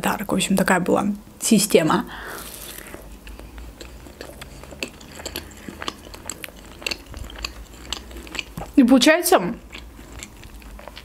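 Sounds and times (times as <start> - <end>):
crunchy chewing: 2.3 - 8.8, 9.4 - 11.0
wet mouth clicks: 2.5 - 8.8.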